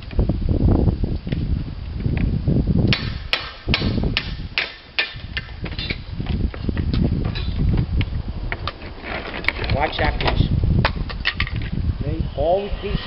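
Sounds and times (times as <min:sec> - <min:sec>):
hammer striking slate: 0:02.9 - 0:05.2
low rumble: 0:10.5 - 0:13.0.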